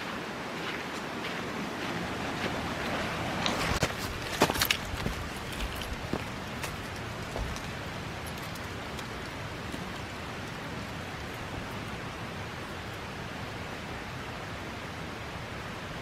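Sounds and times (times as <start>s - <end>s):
steady rushing noise: 0.0s - 16.0s
light crunches: 3.4s - 10.1s.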